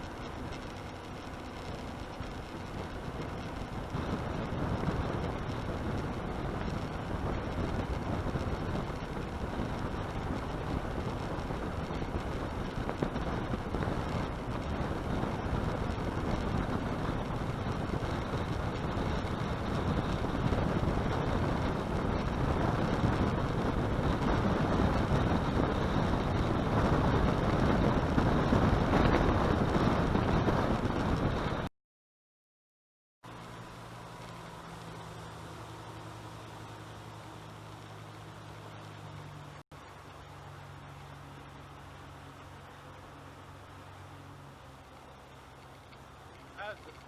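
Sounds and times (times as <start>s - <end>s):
boat engine: 0.0s - 31.7s, 33.2s - 47.0s
wind on microphone: 0.0s - 31.7s
water rushing: 33.3s - 47.0s.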